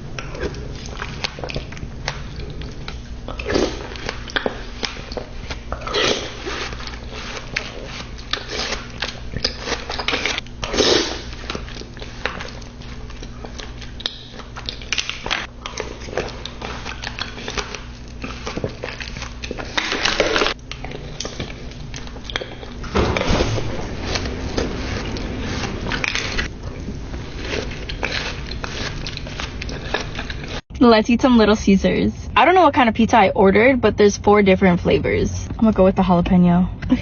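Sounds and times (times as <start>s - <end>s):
crunchy chewing: 0.0s - 30.6s.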